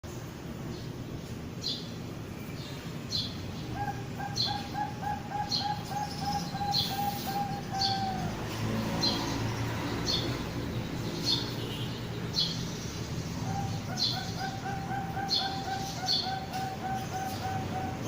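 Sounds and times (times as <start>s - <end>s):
dove cooing: 3.7s - 9.1s, 13.4s - 18.0s.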